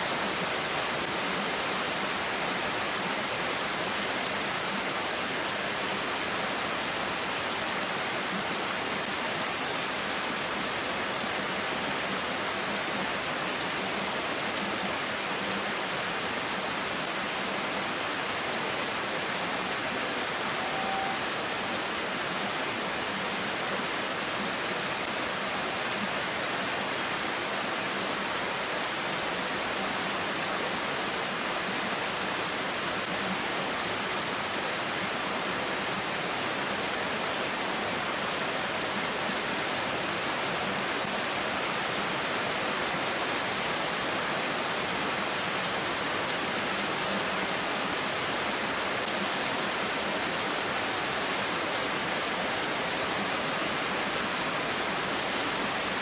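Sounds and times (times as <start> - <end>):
steady rain falling: 0.0 - 56.0
brief faint tone: 20.5 - 21.3.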